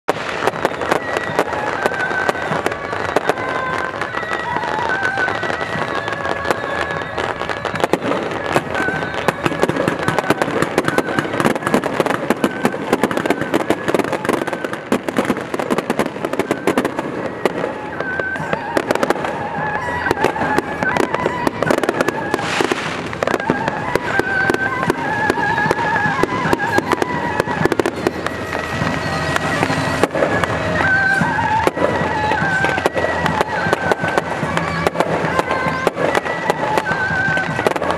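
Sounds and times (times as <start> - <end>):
firecrackers crackling: 0.0 - 37.9
music of short held notes: 0.2 - 37.9.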